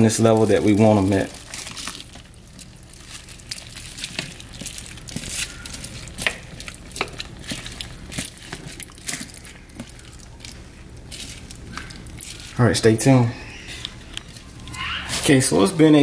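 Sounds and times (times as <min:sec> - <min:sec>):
spoon stirring chunky stew: 0:00.0 - 0:15.5
plastic liner crinkling: 0:00.0 - 0:16.0.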